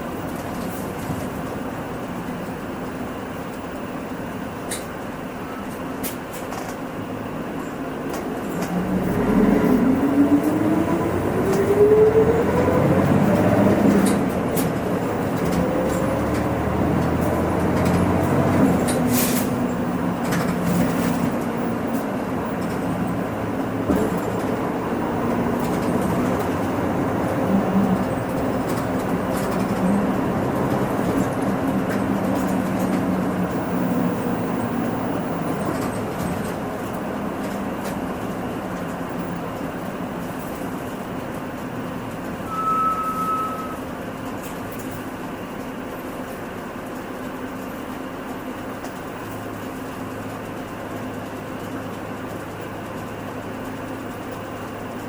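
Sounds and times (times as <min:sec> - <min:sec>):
bus diesel engine: 0:00.0 - 0:55.0.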